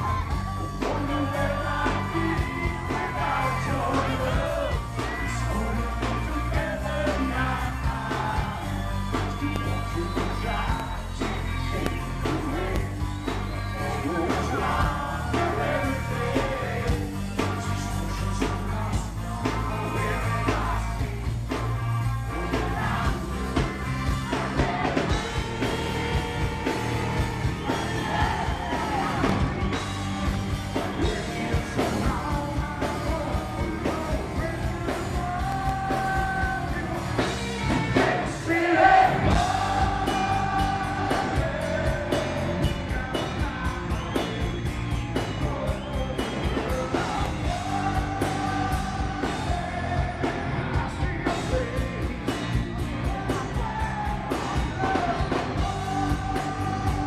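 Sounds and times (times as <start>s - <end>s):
live hard rock band: 0.0s - 57.0s
man singing: 0.0s - 57.0s.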